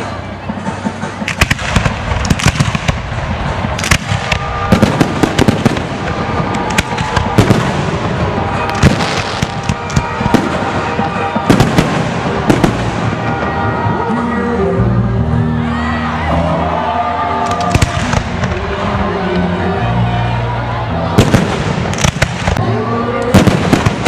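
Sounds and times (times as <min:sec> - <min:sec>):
fireworks bangs and crackles: 0:00.0 - 0:14.2, 0:17.4 - 0:19.2, 0:20.8 - 0:24.0.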